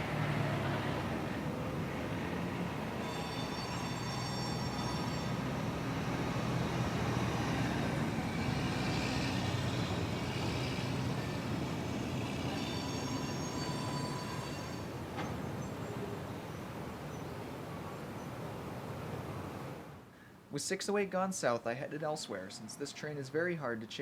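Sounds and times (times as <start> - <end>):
freight train wheels rumbling: 0.0 - 18.2
high wheel squeal: 2.8 - 15.7.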